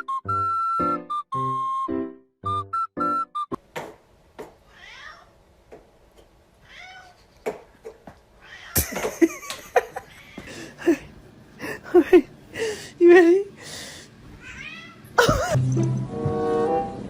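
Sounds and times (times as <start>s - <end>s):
cat meowing: 4.7s - 5.3s, 6.6s - 7.2s, 14.4s - 15.0s.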